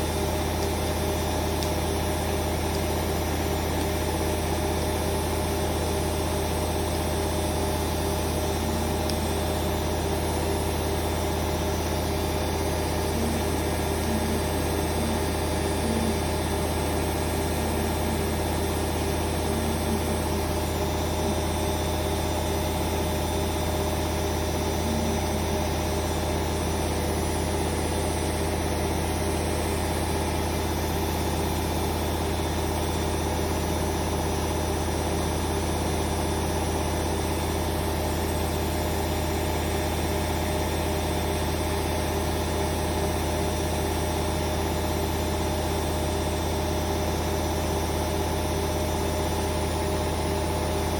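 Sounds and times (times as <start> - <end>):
washing machine drum spinning: 0.0 - 40.7.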